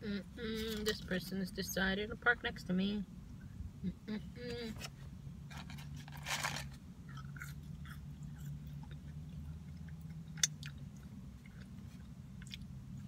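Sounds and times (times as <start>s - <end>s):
low hum: 0.0s - 13.0s
rustle: 4.8s - 6.8s
person chewing: 7.0s - 13.0s.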